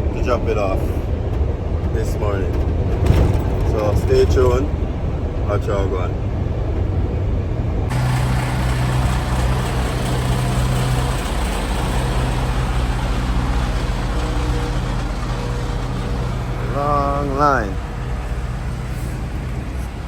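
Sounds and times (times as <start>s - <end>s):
truck engine hum: 6.2s - 20.0s
road noise hiss: 7.5s - 20.0s.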